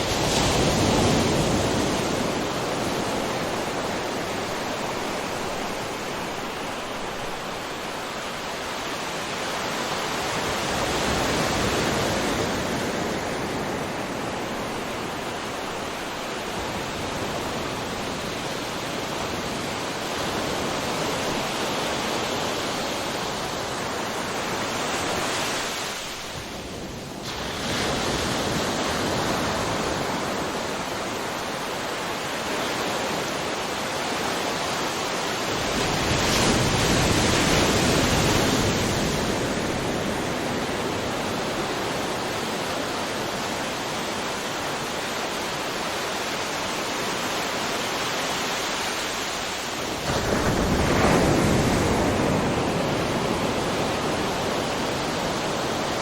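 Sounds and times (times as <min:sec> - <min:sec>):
large waves breaking: 0:00.0 - 0:56.0
ocean waves washing: 0:00.0 - 0:56.0.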